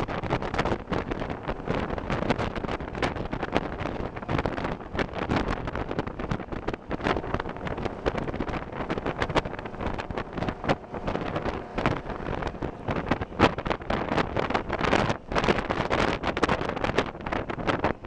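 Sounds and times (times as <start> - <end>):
steady rumble: 0.0 - 18.0
wind buffeting microphone: 0.0 - 18.0.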